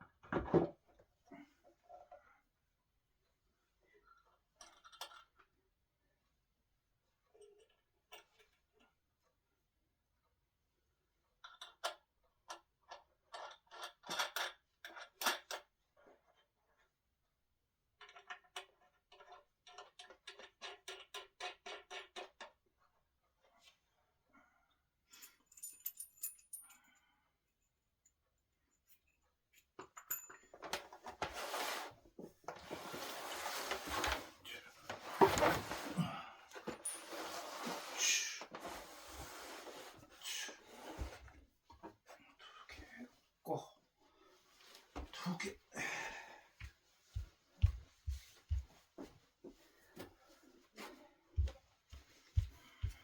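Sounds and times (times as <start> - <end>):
wood scraping: 31.2 - 36.0, 36.8 - 40.0.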